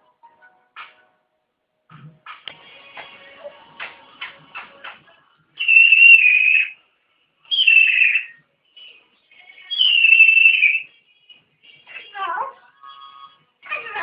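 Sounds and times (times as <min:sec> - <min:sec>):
parrot whistling: 0:05.6 - 0:06.8, 0:07.5 - 0:08.4, 0:09.6 - 0:10.9.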